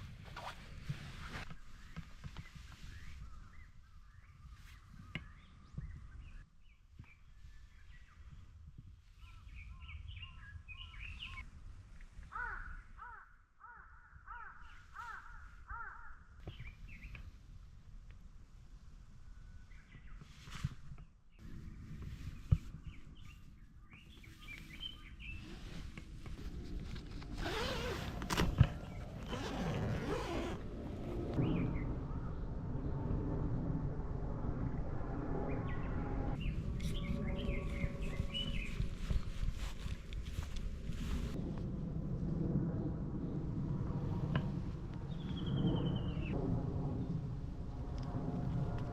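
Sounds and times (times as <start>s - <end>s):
bird chirp: 1.5s - 8.4s, 9.1s - 11.5s, 21.3s - 25.8s, 35.5s - 39.4s, 45.1s - 46.4s
crow cawing: 12.3s - 16.3s
small birds chirping: 19.6s - 25.8s, 35.6s - 40.5s
rustling and handling noise: 20.2s - 31.3s, 36.7s - 41.4s
low rumble: 25.3s - 48.9s.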